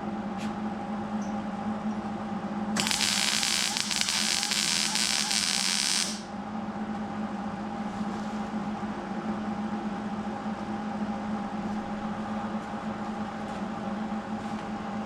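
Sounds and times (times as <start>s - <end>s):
loud air hiss: 2.8s - 6.3s
machine hum: 2.8s - 6.3s.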